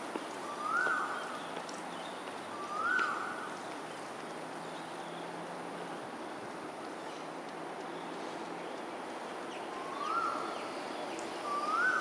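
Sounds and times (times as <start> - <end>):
bird whistled call: 0.5 - 1.2, 2.5 - 3.3, 9.8 - 10.5, 11.4 - 12.0.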